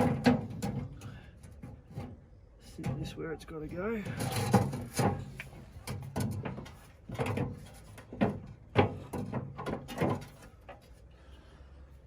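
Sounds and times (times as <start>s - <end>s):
metal part knocking and scraping: 4.0s - 10.7s.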